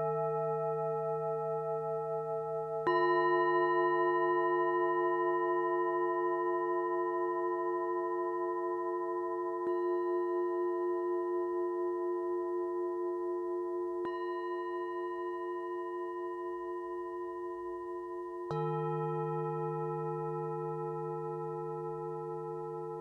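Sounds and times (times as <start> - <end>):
singing bowls ringing: 0.0 - 23.0
singing bowl struck: 14.0 - 23.0.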